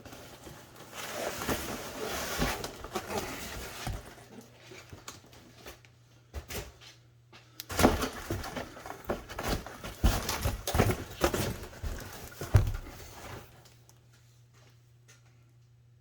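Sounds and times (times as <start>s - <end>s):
packaging rustling: 0.0s - 5.8s, 7.7s - 13.8s.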